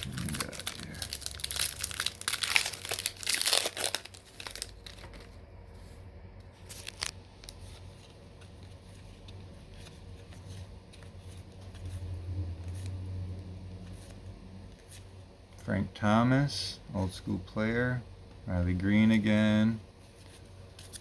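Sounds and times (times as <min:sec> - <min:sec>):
foil wrapper tearing and crinkling: 0:00.0 - 0:05.3.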